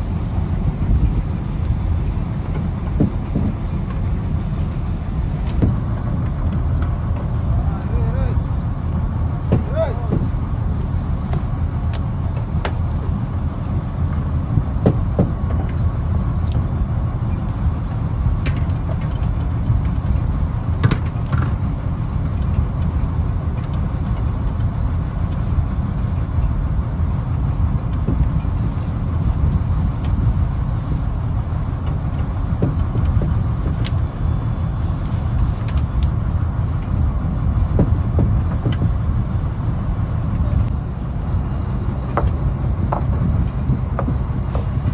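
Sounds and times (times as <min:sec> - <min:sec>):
diesel engine rumbling: 0:00.0 - 0:44.9
short knocks: 0:09.4 - 0:10.5.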